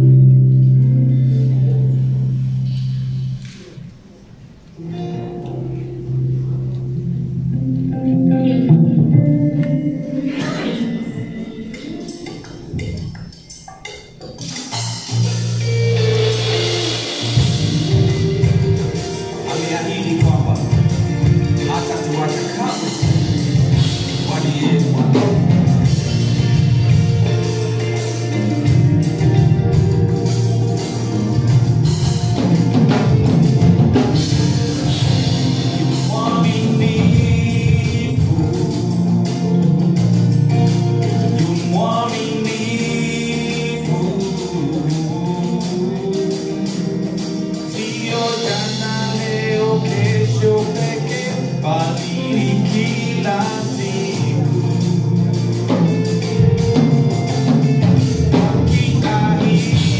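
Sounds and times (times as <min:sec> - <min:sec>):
full band playing: 0:00.0 - 0:59.9
person singing: 0:04.8 - 0:13.4, 0:15.2 - 0:59.9
backing voices singing: 0:09.1 - 0:12.9, 0:34.2 - 0:39.8.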